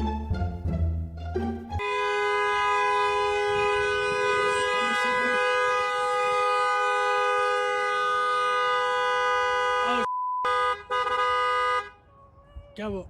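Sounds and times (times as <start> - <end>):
horn-like steady chord: 1.8 - 12.0.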